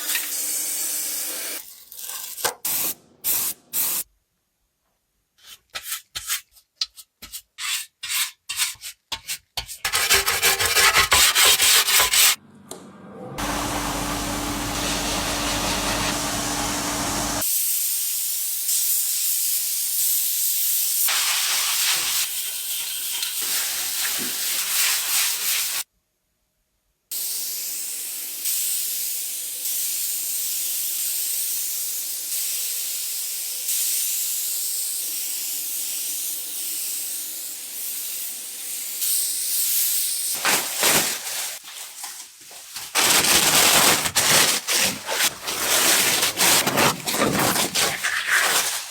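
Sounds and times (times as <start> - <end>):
spray hiss: 2.7 - 4.1, 13.4 - 25.9, 27.2 - 40.4
sanding strokes: 7.2 - 12.4, 43.0 - 48.9
motor running: 13.4 - 17.4.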